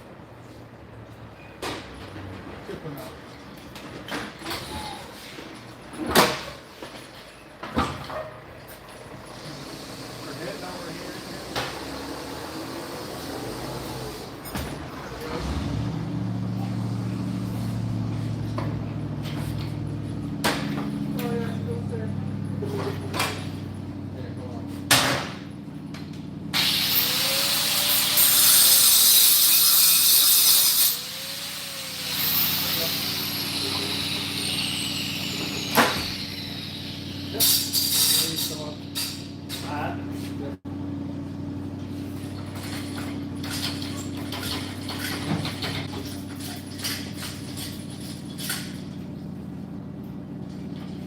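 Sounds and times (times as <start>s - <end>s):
low mechanical hum: 0.0s - 28.2s, 32.7s - 51.0s
power tool hissing: 26.6s - 39.3s.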